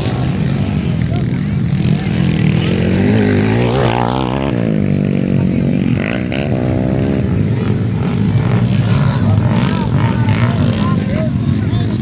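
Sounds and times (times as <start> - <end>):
motorcycle engines racing: 0.0 - 12.0.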